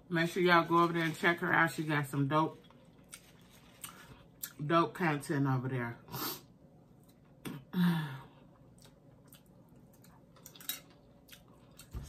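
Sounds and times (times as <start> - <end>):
person chewing: 2.6 - 4.6, 8.5 - 12.0.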